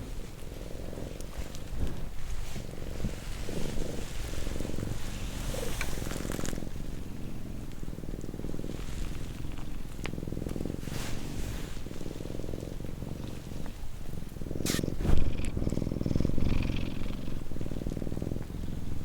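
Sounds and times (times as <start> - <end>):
faint clicks and rustles: 0.0 - 18.7
cat purring: 0.0 - 19.0.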